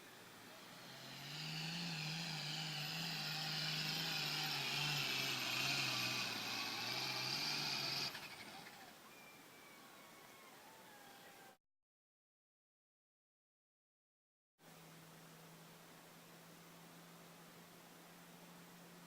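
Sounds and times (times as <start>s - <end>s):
diesel tractor engine at full throttle: 0.0s - 8.8s
high turbo whine: 0.0s - 9.0s.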